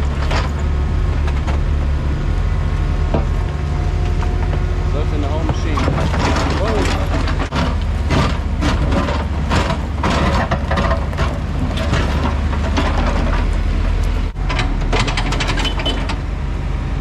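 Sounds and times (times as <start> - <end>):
debris knocking and scraping: 0.0 - 1.7, 5.3 - 16.1
heavy diesel machinery running: 0.0 - 17.0.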